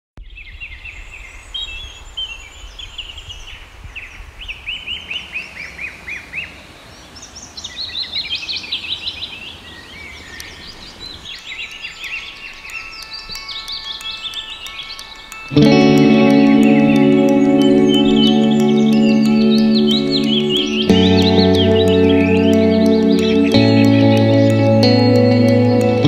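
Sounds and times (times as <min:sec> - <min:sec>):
small birds chirping and singing: 0:00.2 - 0:26.0.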